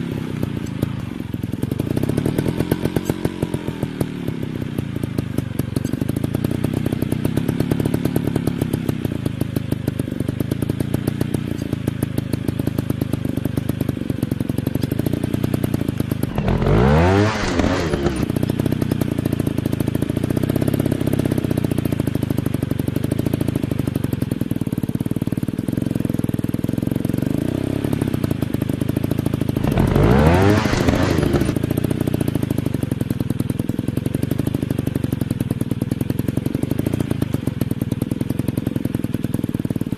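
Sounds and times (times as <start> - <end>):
dirt bike engines running: 0.0 - 25.4, 29.4 - 33.3
dirt bike revving: 1.8 - 5.2, 16.2 - 19.3, 29.6 - 32.4.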